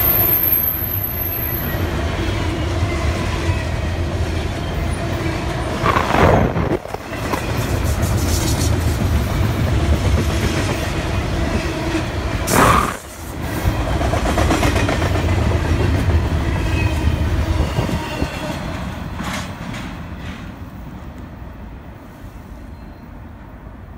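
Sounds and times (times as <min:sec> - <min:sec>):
freight train wheels rumbling: 0:00.0 - 0:23.0
loud burst: 0:12.5 - 0:13.2.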